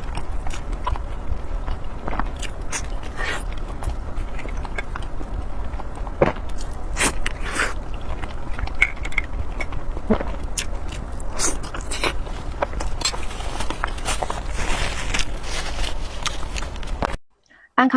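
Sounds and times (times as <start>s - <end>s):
person biting and chewing food: 0.0s - 17.2s
steady low hum: 0.0s - 17.9s.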